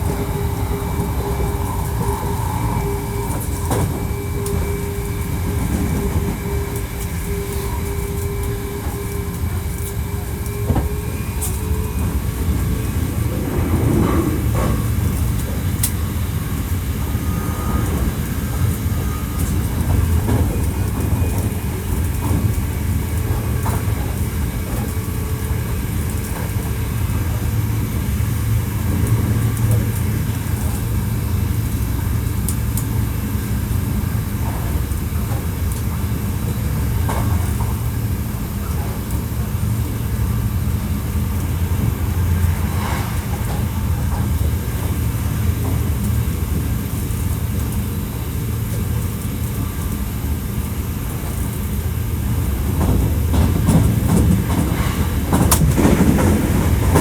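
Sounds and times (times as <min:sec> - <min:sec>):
traction motor hum: 0:00.0 - 0:34.7
train wheels rumbling on rail: 0:00.0 - 0:57.0.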